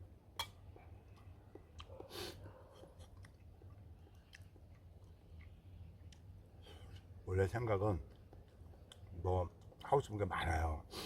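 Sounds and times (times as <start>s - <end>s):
person chewing food: 0.4s - 7.2s, 8.0s - 9.9s.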